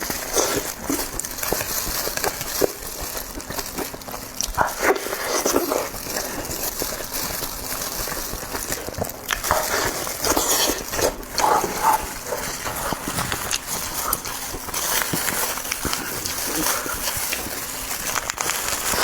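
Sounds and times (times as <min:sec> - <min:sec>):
chewing with wet mouth clicks: 0:00.0 - 0:19.0
lip-smacking: 0:08.1 - 0:19.0.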